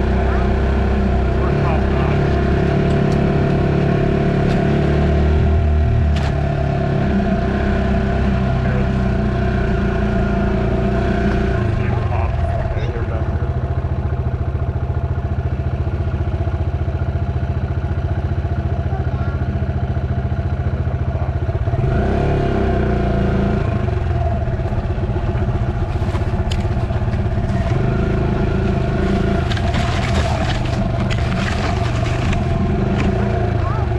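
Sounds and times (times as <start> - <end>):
dirt bike engine running: 0.0 - 33.9
scraping and clattering: 29.1 - 33.1.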